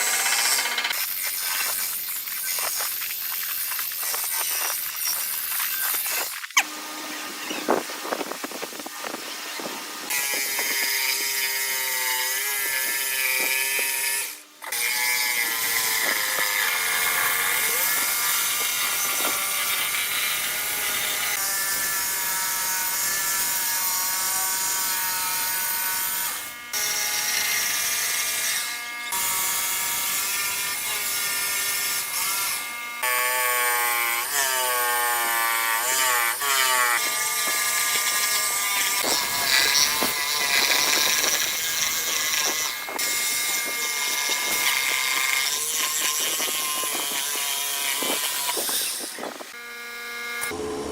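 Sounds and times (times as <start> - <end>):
power tool motor whining: 0.0 - 50.9.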